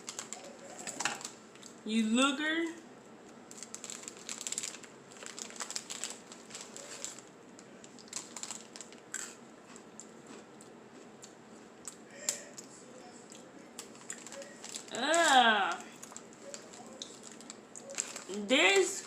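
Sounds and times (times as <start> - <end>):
plastic wrapper crackling: 0.0 - 1.8, 3.3 - 9.3, 13.8 - 18.9.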